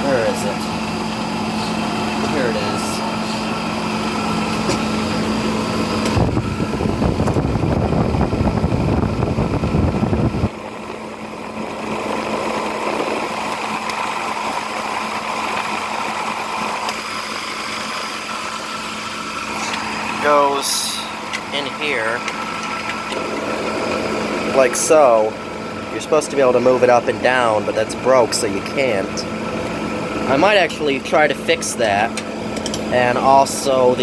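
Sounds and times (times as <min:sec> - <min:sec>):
window air conditioner humming: 0:00.0 - 0:34.0
loud rumbling rush: 0:05.3 - 0:10.9.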